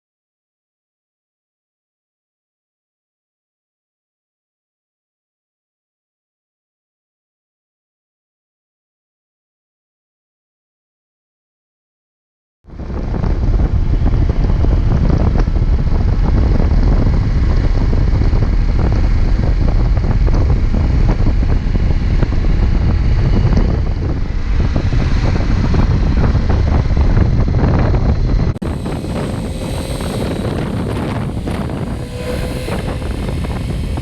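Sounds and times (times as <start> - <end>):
wind buffeting microphone: 12.7 - 34.0
vehicle noise: 28.6 - 34.0.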